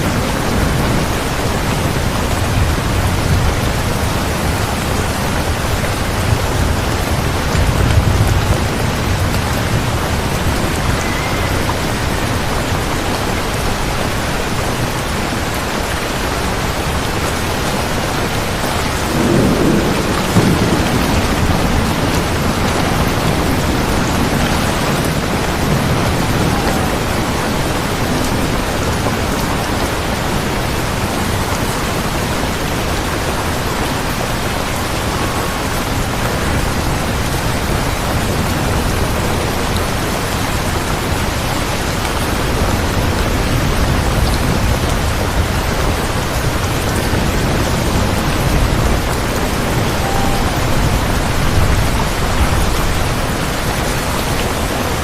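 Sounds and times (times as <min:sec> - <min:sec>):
dense rainfall: 0:00.0 - 0:55.0
low rumbling: 0:42.5 - 0:55.0.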